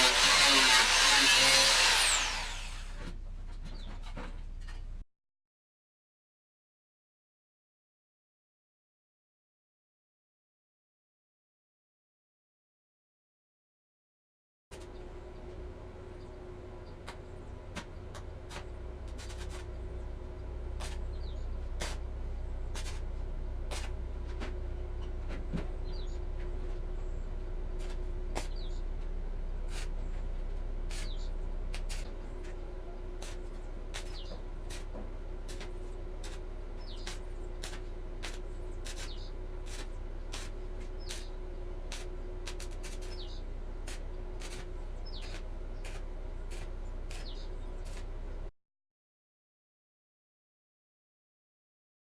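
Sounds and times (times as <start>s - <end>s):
steady low hum: 14.7s - 48.5s.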